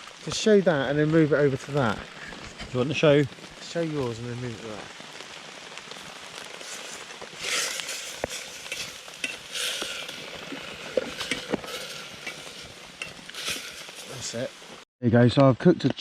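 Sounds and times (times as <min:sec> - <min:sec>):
crackling clicks: 0:00.0 - 0:14.8
food sizzling in a pan: 0:00.0 - 0:14.8
scraping of stirring: 0:06.6 - 0:14.8.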